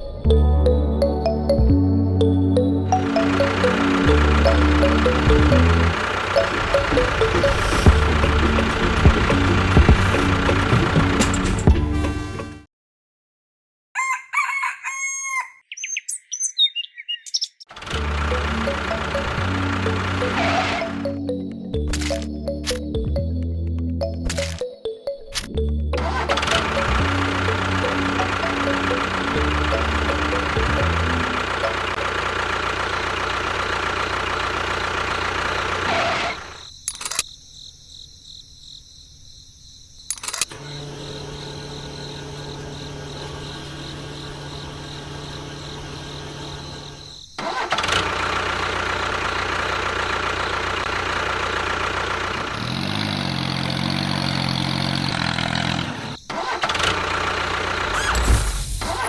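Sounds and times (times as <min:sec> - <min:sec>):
engine running: 0:02.5 - 0:12.7, 0:17.7 - 0:24.6, 0:25.4 - 0:37.2, 0:40.1 - 0:59.0
steady low hum: 0:03.0 - 0:12.6.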